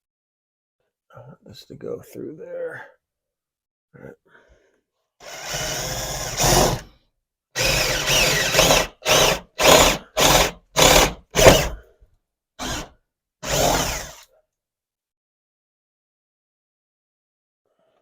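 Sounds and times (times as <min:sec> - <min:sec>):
power drill boring: 0:05.2 - 0:06.9, 0:07.6 - 0:11.8, 0:12.6 - 0:14.3.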